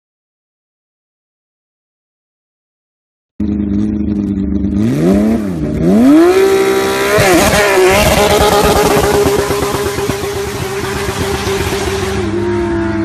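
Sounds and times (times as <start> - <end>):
race car engine revving: 3.4 - 13.0.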